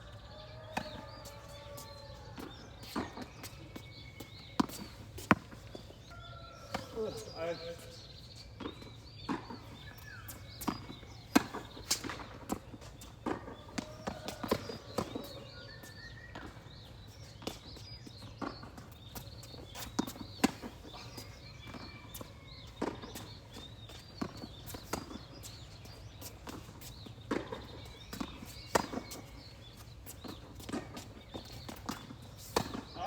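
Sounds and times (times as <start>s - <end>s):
players' footsteps: 0.0s - 33.0s
rackets striking tennis ball: 0.7s - 5.9s, 8.0s - 15.5s, 19.5s - 33.0s
ball bouncing on court: 13.2s - 15.4s.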